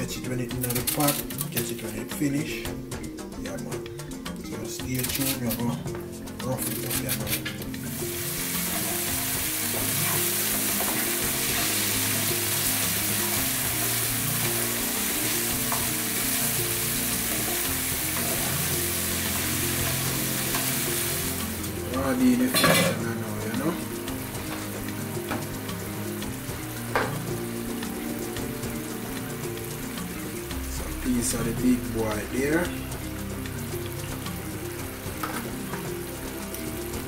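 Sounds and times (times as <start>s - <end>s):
spatula stirring: 3.9s - 31.3s
vegetables sizzling in oil: 5.2s - 37.0s.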